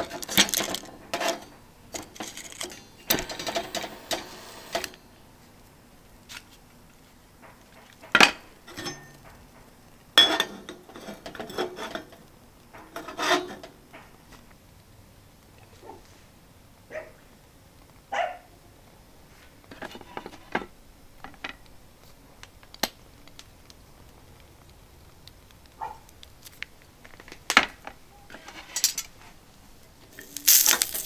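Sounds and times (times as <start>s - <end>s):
long scraping hiss: 2.3s - 5.0s, 30.2s - 31.0s.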